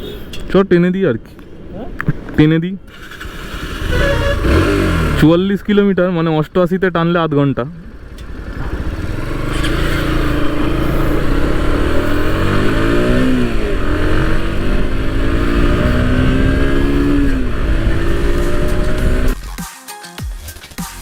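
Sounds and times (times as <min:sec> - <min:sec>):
motorcycle engine accelerating: 0:02.9 - 0:05.5, 0:07.8 - 0:19.4.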